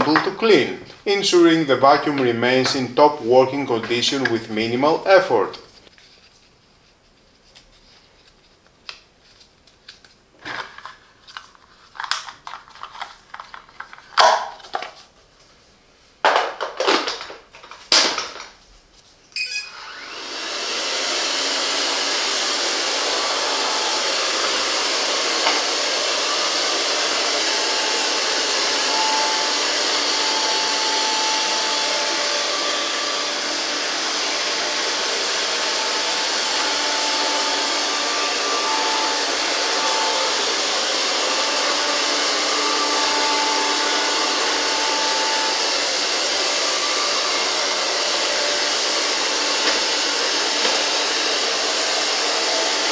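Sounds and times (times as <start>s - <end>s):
robot vacuum cleaner whirring: 0.0s - 5.7s, 19.4s - 52.9s.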